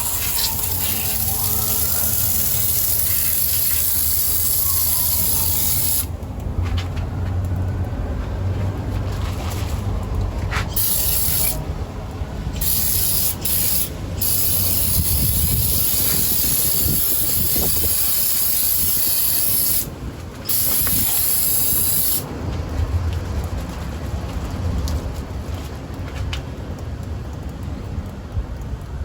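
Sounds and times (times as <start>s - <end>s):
aerosol spray can hissing: 0.0s - 6.1s, 10.7s - 11.6s, 12.6s - 19.9s, 20.5s - 22.2s.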